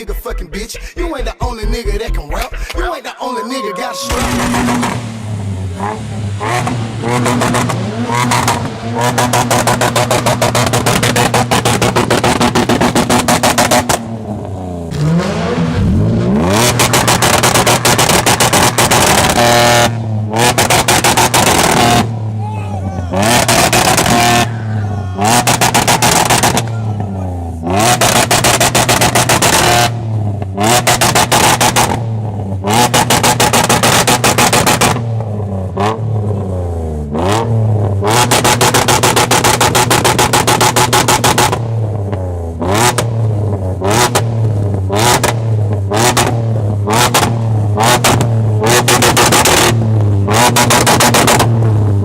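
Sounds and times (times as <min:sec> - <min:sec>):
car engine revving: 0:03.9 - 0:52.0.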